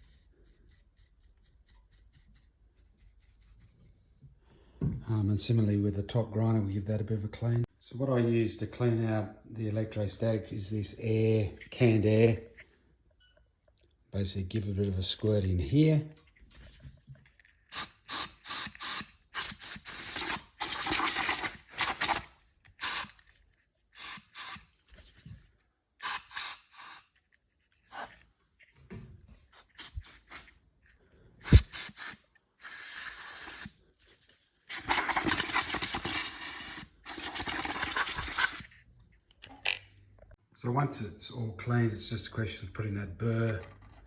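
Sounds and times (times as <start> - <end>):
compressed air hissing bursts: 22.8 - 23.1, 26.0 - 27.1, 31.4 - 33.7, 34.7 - 38.6.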